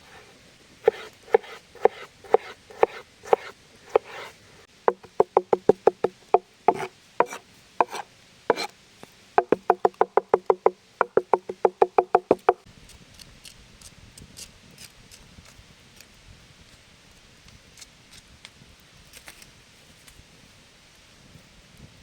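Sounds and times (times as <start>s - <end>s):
knife chopping on wooden board: 0.0s - 8.7s, 9.4s - 12.6s.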